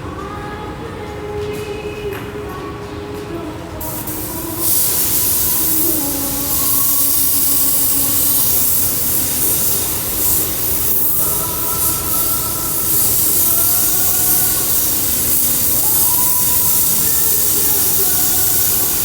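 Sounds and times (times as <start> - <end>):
hot-air welding gun hissing: 3.8 - 19.0.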